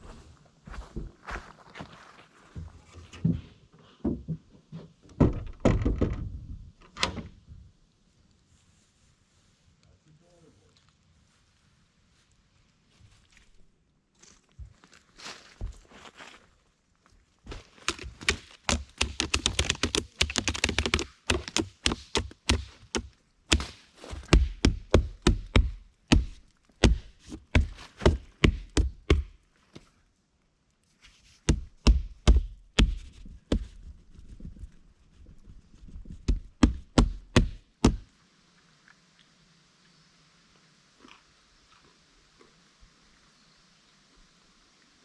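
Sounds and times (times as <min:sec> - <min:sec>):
rapid knocks and thuds: 0:05.1 - 0:06.4, 0:17.5 - 0:29.4, 0:31.4 - 0:34.7, 0:35.8 - 0:38.1.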